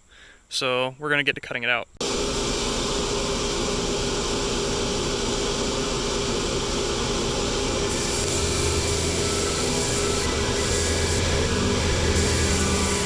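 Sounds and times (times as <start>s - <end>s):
power tool cutting steel: 7.7s - 13.0s.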